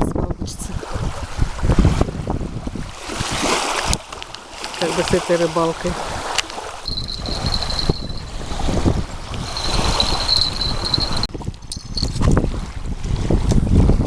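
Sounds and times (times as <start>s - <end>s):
wind gusting on microphone: 0.0s - 14.0s
high-pitched tone: 6.9s - 8.4s, 9.6s - 12.2s.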